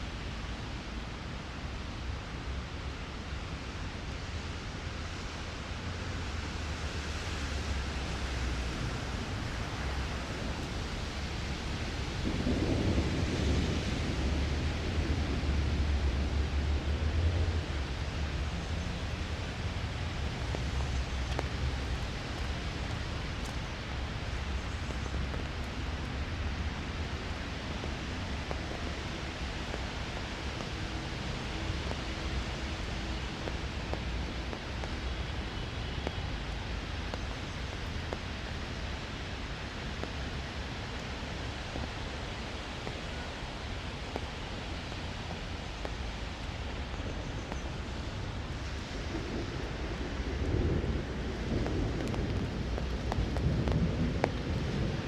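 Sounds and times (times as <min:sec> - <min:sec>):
steady rain falling: 0:00.0 - 0:55.0
thunder rumbling: 0:08.8 - 0:39.0, 0:47.6 - 0:55.0.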